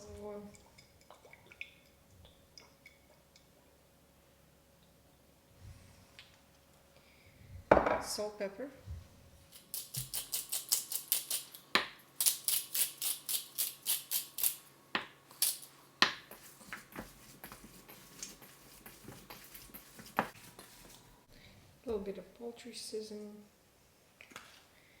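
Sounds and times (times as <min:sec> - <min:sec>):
salt shaker rattling: 0:09.6 - 0:11.6, 0:12.2 - 0:14.6.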